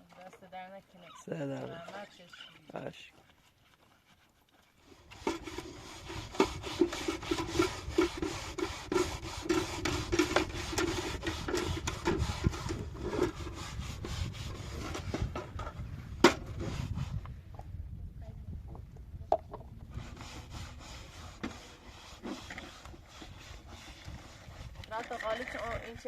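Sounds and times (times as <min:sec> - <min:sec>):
rapid rasping strokes: 0:03.9 - 0:15.4, 0:19.9 - 0:26.0.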